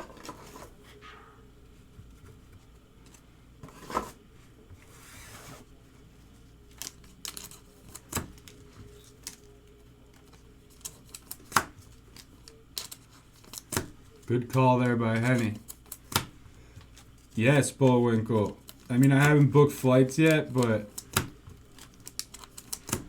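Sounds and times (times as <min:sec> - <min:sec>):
foil pack rustle: 0:06.6 - 0:09.5, 0:10.1 - 0:16.1, 0:16.8 - 0:23.0
cards clicking and tapping: 0:06.7 - 0:09.5, 0:10.1 - 0:17.1, 0:17.8 - 0:23.0.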